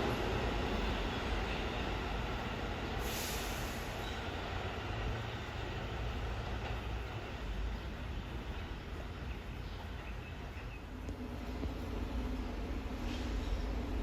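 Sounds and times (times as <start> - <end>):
subway train rumbling along track: 0.0 - 14.0
brief high hiss: 3.0 - 4.0.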